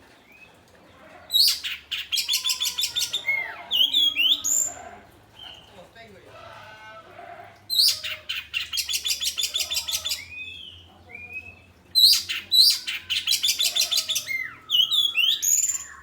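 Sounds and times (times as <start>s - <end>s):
songbird singing loudly: 7.7s - 16.0s.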